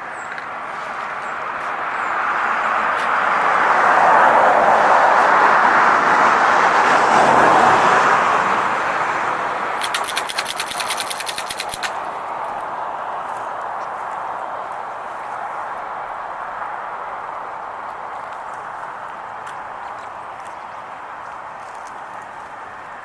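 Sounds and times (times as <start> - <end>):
vehicle passing on road: 0.4 - 23.0
sharp high clicks: 9.8 - 12.6.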